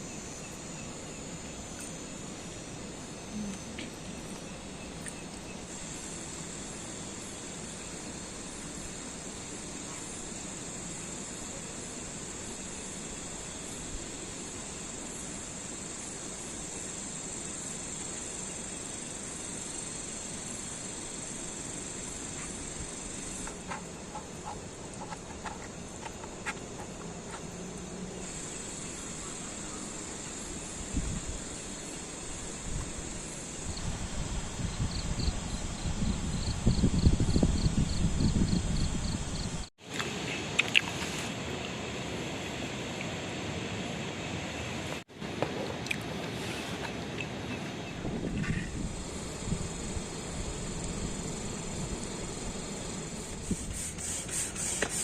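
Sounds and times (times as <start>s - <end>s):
insects trilling: 0.0s - 45.0s, 46.9s - 55.0s
background hiss: 0.0s - 55.0s.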